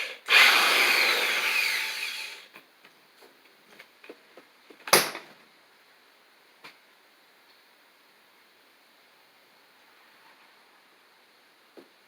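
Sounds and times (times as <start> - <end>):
hammer drill winding down: 0.0 - 2.4.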